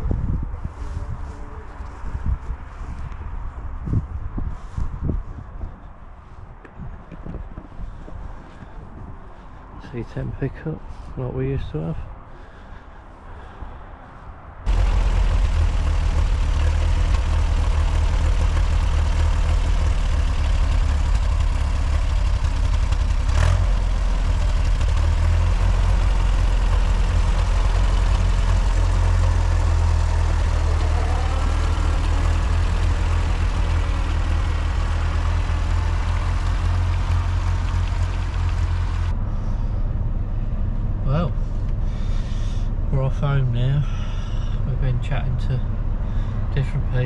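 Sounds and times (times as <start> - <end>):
vehicle engine and road noise: 0.0 - 47.0.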